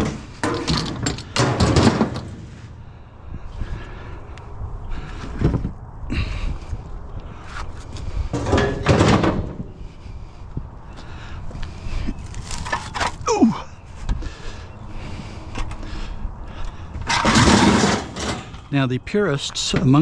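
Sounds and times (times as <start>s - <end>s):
scrap metal knocks and clatter: 0.0s - 2.7s, 8.3s - 9.7s, 12.3s - 13.2s, 17.0s - 18.7s.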